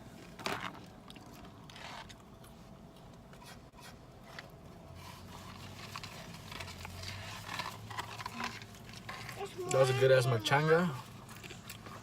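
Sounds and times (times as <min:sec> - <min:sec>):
paper bag rustling and crinkling: 0:05.0 - 0:12.0.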